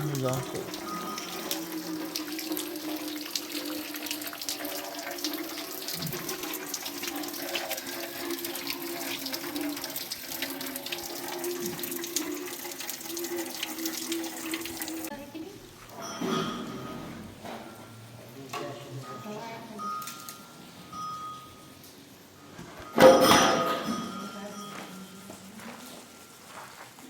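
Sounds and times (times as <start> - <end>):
water running and splashing: 0.0 - 15.9.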